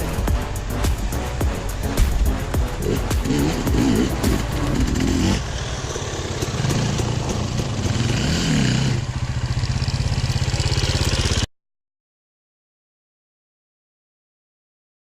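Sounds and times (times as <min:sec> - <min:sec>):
motorcycle engine idling and revving: 0:00.0 - 0:11.5.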